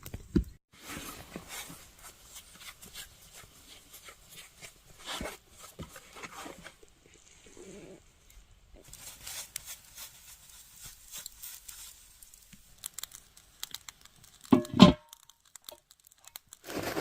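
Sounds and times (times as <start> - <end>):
crinkling and rustling handling noise: 0.0 - 17.0
small clicks: 15.1 - 16.7.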